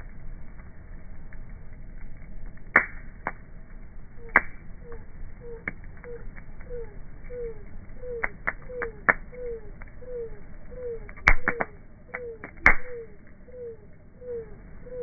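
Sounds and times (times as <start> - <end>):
loud snaps of burning wood: 0.0 - 10.1, 10.7 - 13.4
bonfire crackling and popping: 0.0 - 15.0.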